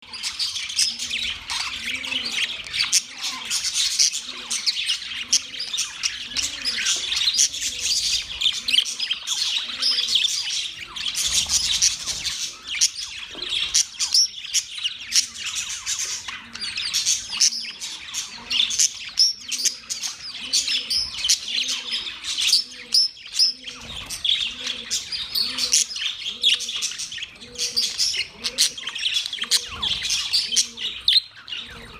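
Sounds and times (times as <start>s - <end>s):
budgerigars chattering and chirping: 0.0s - 31.9s.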